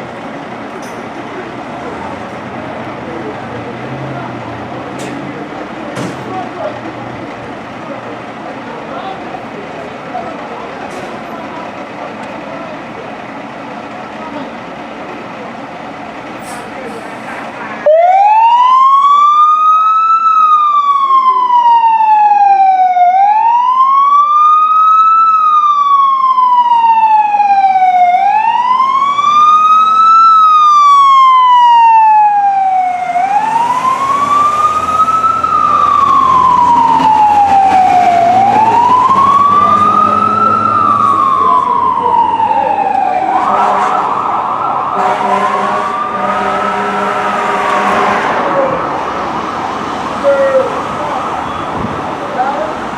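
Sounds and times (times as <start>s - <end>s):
truck engine rumble: 0.0s - 52.9s
fire engine siren wailing: 16.9s - 52.9s.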